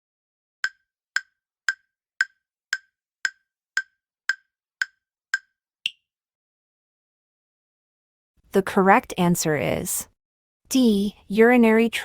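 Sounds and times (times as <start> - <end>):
countdown timer ticks: 0.6 - 6.0.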